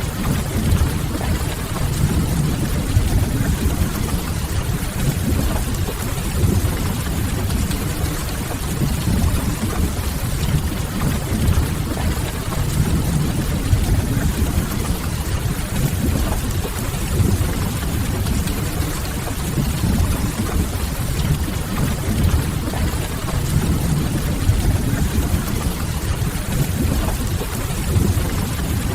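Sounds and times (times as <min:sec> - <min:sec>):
steady rain: 0:00.0 - 0:28.9.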